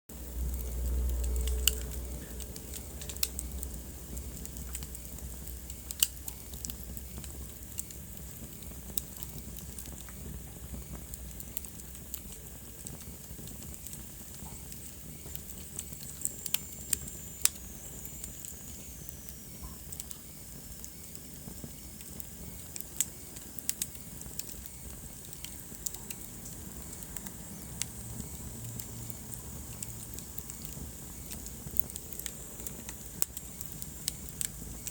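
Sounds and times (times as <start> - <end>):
low rumble of burning: 0.1 - 34.9
wood fire crackling and popping: 0.1 - 34.9.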